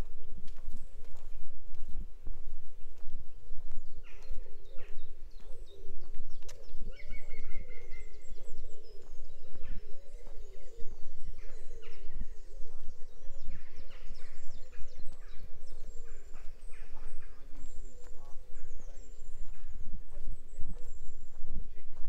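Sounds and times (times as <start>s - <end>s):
footsteps: 0.0s - 4.4s
songbirds chirping and trilling: 0.0s - 22.0s.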